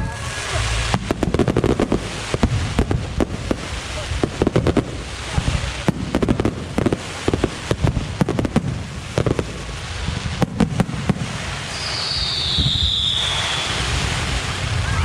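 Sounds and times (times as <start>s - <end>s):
low rumble: 0.0s - 11.7s
fireworks bangs and crackling: 0.0s - 15.0s.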